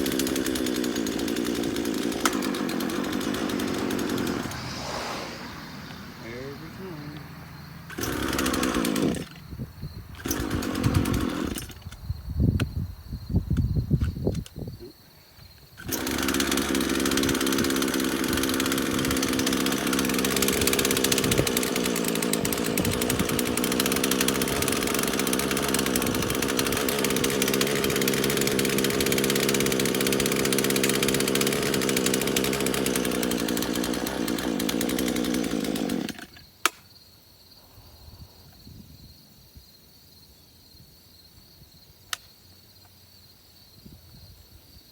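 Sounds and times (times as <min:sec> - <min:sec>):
chainsaw engine running: 0:00.0 - 0:09.5, 0:10.2 - 0:11.8, 0:15.8 - 0:36.4.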